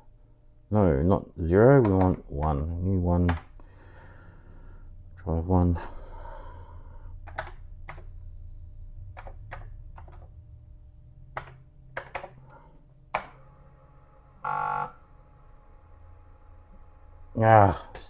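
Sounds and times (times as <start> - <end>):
steady low hum: 0.0 - 18.0
computer keyboard key clicks: 7.2 - 8.1.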